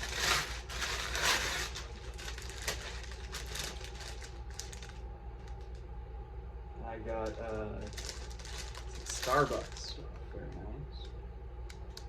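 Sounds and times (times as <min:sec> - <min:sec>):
packaging rustling: 0:00.0 - 0:05.8, 0:07.2 - 0:10.0
small crinkles and clicks: 0:00.0 - 0:05.9, 0:07.2 - 0:12.0.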